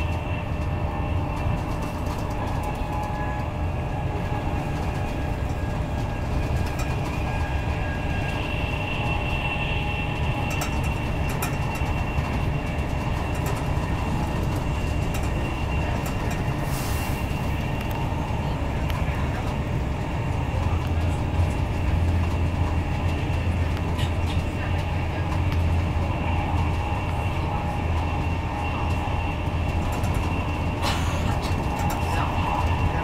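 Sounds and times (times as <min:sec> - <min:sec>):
train wheels rumbling on track: 0:00.0 - 0:33.0
hiss of passing air: 0:16.6 - 0:17.6.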